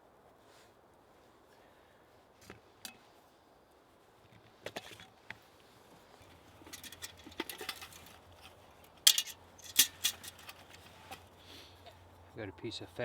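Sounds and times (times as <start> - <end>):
cooking gear clinking and knocking: 6.6 - 8.3, 9.0 - 10.9.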